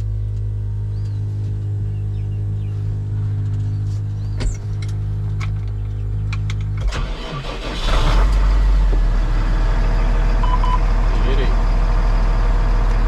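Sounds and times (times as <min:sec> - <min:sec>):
ignition clicks: 0:04.2 - 0:08.5
engine cranking and running: 0:04.4 - 0:13.0.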